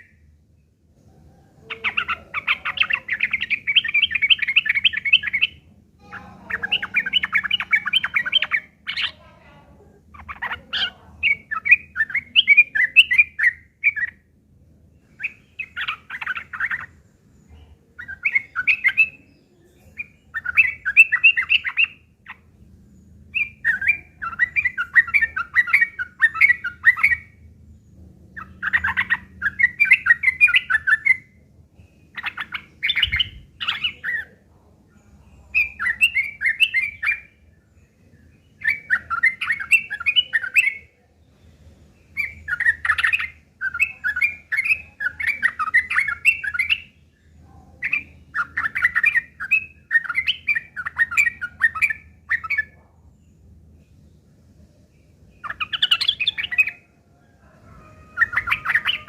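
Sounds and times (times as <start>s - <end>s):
bird harsh fast chattering: 10.1s - 14.1s.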